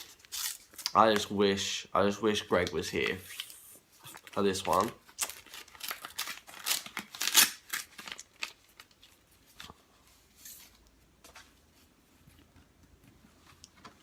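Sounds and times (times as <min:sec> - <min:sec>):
paper rustling and tearing: 0:00.0 - 0:01.3, 0:02.5 - 0:09.7.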